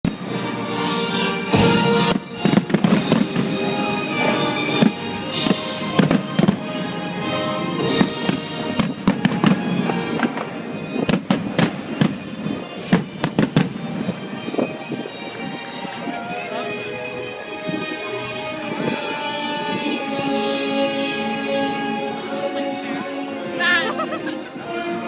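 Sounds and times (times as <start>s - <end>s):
music with sustained notes: 0.1s - 25.0s
fireworks bangs and crackles: 1.4s - 15.4s.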